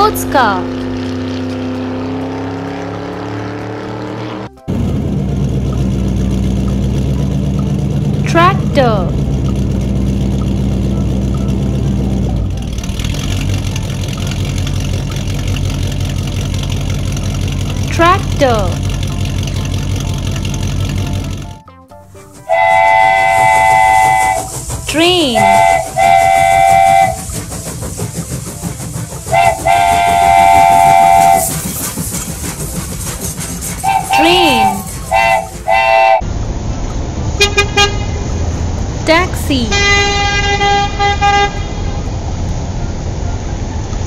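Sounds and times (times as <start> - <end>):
train rumble: 0.0 - 2.4, 4.5 - 44.0
tractor engine running: 0.0 - 37.3
steam locomotive whistle: 22.4 - 32.1, 33.3 - 36.2.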